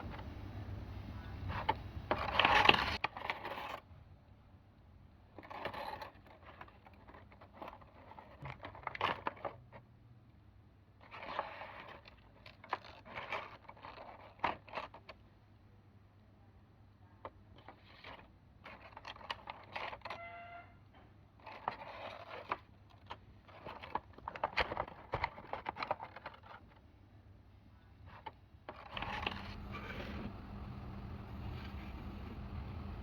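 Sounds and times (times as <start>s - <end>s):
steady low hum: 0.0s - 3.0s, 27.4s - 33.0s
plastic toys clicking and rustling: 5.4s - 9.8s, 11.0s - 15.2s, 17.2s - 20.2s, 21.4s - 26.8s
brief squeak: 20.1s - 20.8s.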